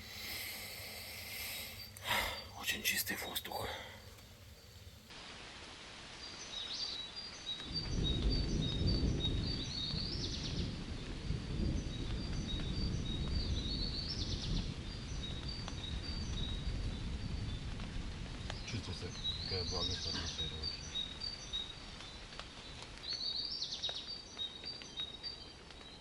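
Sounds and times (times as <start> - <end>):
birds chirping: 0.0 - 5.1, 18.4 - 26.0
thunder rumbling: 7.7 - 21.2.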